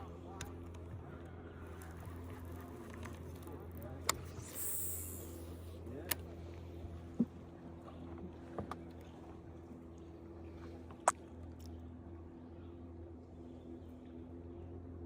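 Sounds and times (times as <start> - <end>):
boat motor humming: 0.0 - 15.0
clicks and knocks on boat: 7.1 - 9.4.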